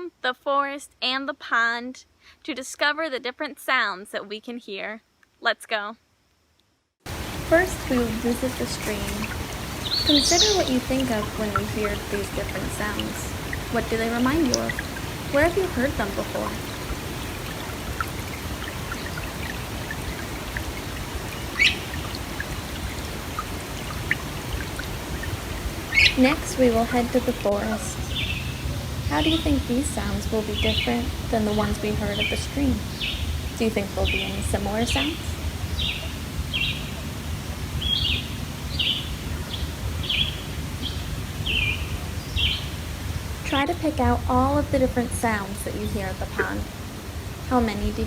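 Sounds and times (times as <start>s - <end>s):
water plinks and drips: 7.1s - 37.3s, 43.5s - 48.0s
low background rumble: 7.1s - 48.0s
stream water flowing: 7.1s - 48.0s
bird chirping: 7.6s - 37.1s, 37.8s - 42.8s.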